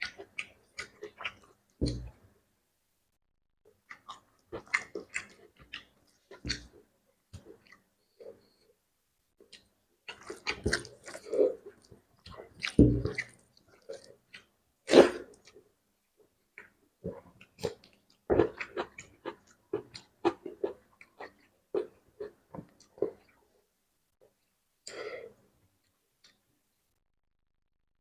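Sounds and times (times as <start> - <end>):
person chewing with open mouth: 0.0 - 2.2, 3.8 - 8.6, 9.4 - 15.6, 16.6 - 23.4.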